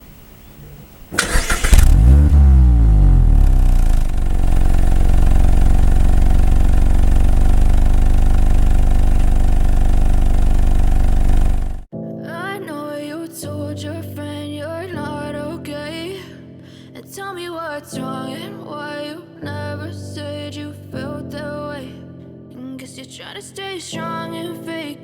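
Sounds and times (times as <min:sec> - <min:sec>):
starter motor cranking: 0:01.1 - 0:11.9
car engine revving and idling: 0:01.2 - 0:11.9
music: 0:11.9 - 0:25.0.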